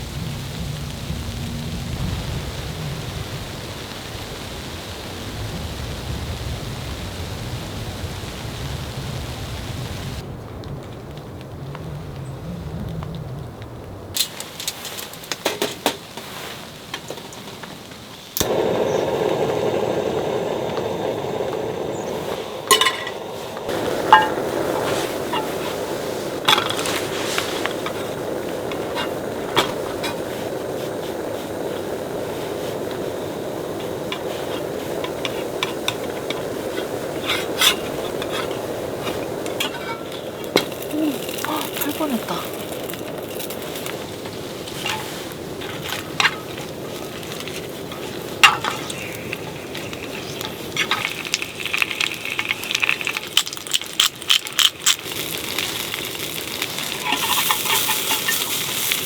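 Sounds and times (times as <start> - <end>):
food sizzling in a pan: 0.0 - 10.2, 17.4 - 59.0
steady gas hiss: 0.0 - 10.2, 14.2 - 59.0
utensil scraping a pan: 22.2 - 30.5, 34.1 - 43.9, 44.7 - 51.2, 56.8 - 59.0
metal cookware clinking: 22.6 - 23.3, 24.0 - 24.5, 39.5 - 40.8, 48.4 - 49.0, 56.9 - 58.7
utensil clatter: 56.7 - 59.0.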